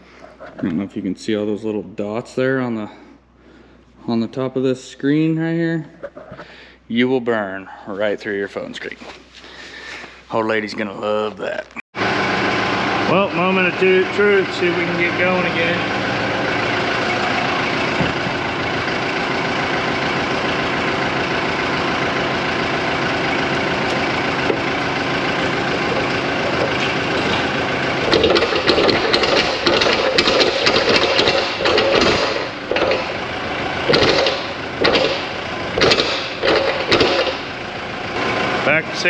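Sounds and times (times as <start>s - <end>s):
snow plow engine running: 12.0s - 39.0s
plow knocks and scraping: 12.2s - 38.8s.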